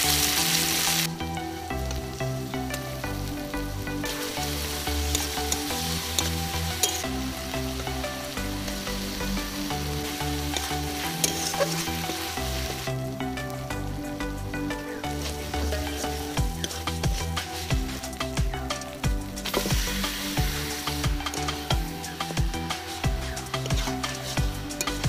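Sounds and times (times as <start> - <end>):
onions sizzling in hot oil: 0.0 - 13.9, 14.6 - 25.0
metal spatula scraping a pan: 5.1 - 7.2, 10.5 - 12.8, 15.2 - 17.8, 19.5 - 25.0.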